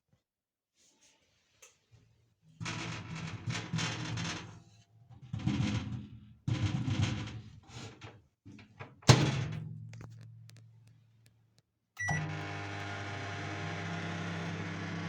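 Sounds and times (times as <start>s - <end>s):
short beep: 12.0s - 12.3s
microwave oven humming: 12.0s - 15.0s.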